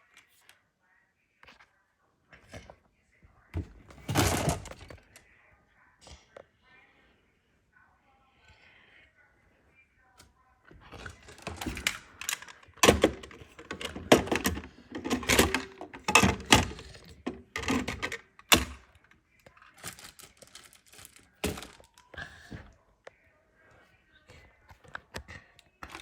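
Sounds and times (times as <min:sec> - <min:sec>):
hard objects knocking and thudding: 0:11.0 - 0:18.8, 0:21.4 - 0:21.9.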